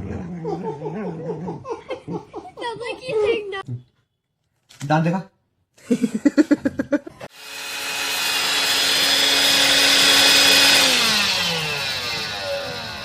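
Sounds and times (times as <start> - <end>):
electric motor appliance running: 7.3 - 13.0.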